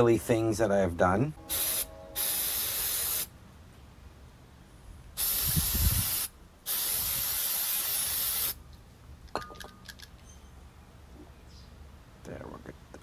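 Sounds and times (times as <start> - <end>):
pressurized spray hissing: 1.5 - 3.3, 5.2 - 8.6.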